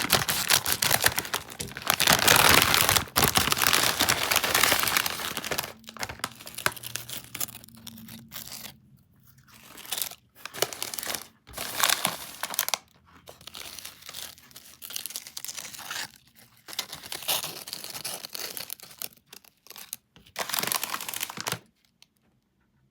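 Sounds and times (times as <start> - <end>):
chips crunching: 0.0 - 8.6, 9.5 - 12.8, 17.2 - 21.6
chip bag crinkling and tearing: 0.0 - 22.0.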